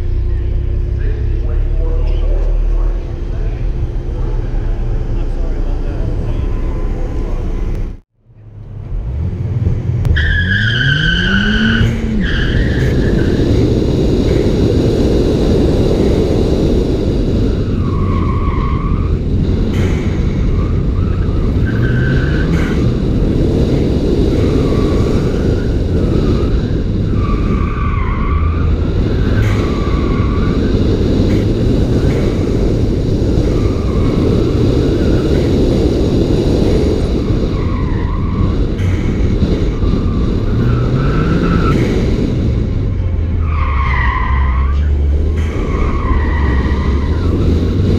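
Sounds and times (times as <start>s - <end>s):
car engine revving hard: 8.9s - 42.9s, 44.6s - 47.9s
tyres squealing: 43.4s - 47.9s.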